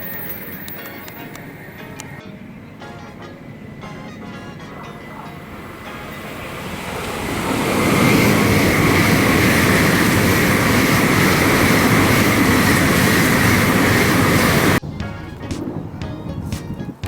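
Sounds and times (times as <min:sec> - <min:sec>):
bullet train passing at speed: 0:00.0 - 0:14.9.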